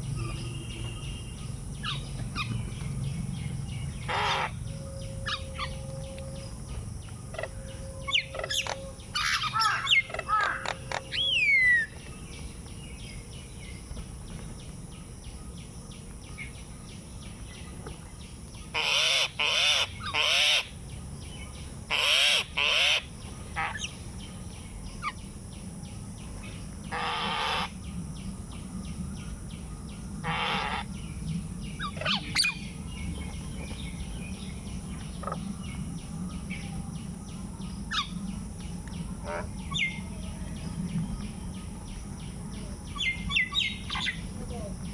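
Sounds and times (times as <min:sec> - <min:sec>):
loud harsh bird calls: 0:00.0 - 0:12.6, 0:18.6 - 0:20.9, 0:21.7 - 0:24.3, 0:26.4 - 0:27.9, 0:30.2 - 0:31.1, 0:31.7 - 0:35.4, 0:39.0 - 0:44.9
bird chirps: 0:00.0 - 0:44.9.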